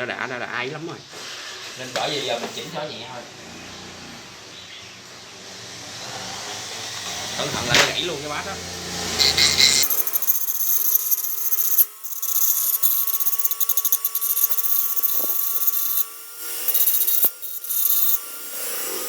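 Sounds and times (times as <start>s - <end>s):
rotary grinder grinding plastic: 8.9s - 19.0s.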